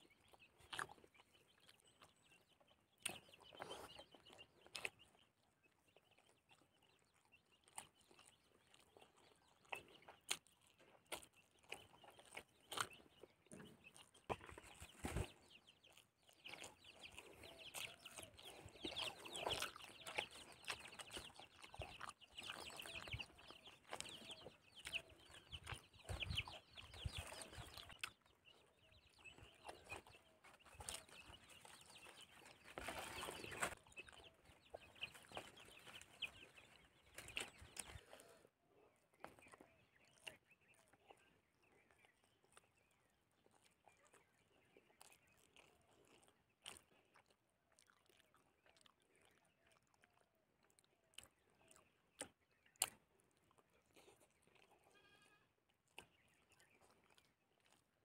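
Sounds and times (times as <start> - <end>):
birds calling: 0.0 - 43.0
soft chewing and mouth clicks: 0.0 - 58.0.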